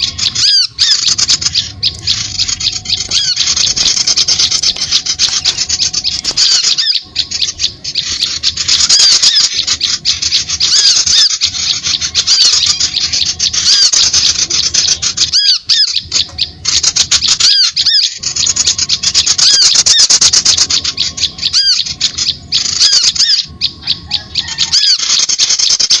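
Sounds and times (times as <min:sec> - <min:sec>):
harsh scratchy bird chatter: 0:00.0 - 0:26.0.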